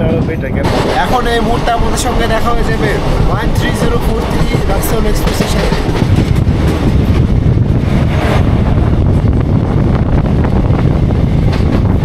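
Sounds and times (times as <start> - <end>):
trains rumbling at speed: 0.0 - 12.0
wind buffeting microphone: 0.0 - 12.0.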